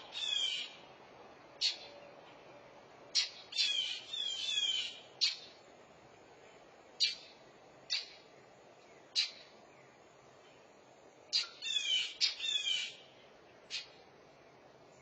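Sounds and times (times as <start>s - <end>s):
harsh bird alarm calls: 0.0s - 0.8s, 1.6s - 1.9s, 3.1s - 5.6s, 7.0s - 8.2s, 9.1s - 9.5s, 11.3s - 13.1s, 13.7s - 14.0s.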